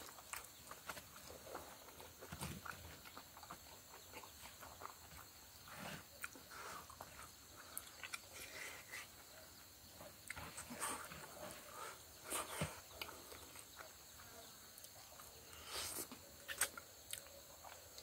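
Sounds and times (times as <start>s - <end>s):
man chewing and lip-smacking: 0.0s - 5.3s, 6.1s - 8.4s, 15.9s - 18.0s.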